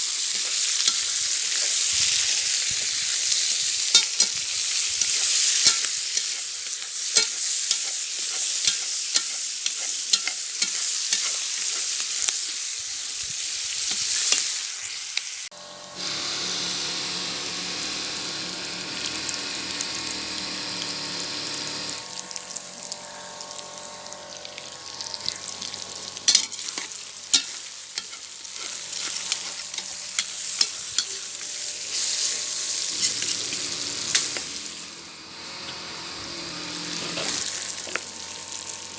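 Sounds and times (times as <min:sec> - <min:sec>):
food sizzling and frying: 0:00.0 - 0:38.9
steady humming sound: 0:15.5 - 0:38.9.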